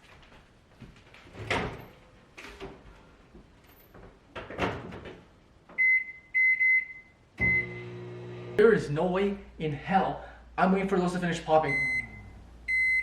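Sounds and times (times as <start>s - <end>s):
microwave running hum: 7.4s - 8.6s.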